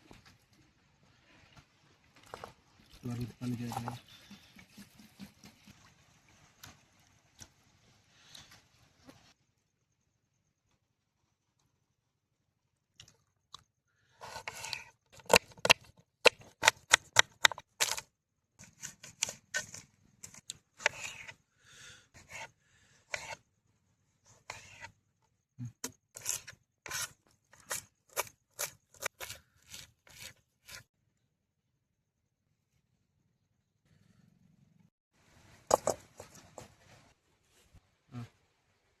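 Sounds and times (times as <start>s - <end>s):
knife strokes: 22.2s - 23.4s, 24.3s - 25.0s, 26.1s - 30.9s.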